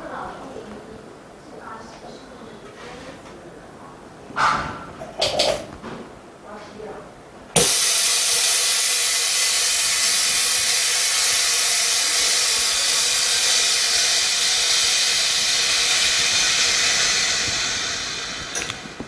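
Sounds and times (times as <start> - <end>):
compressed air hissing: 7.6 - 19.0.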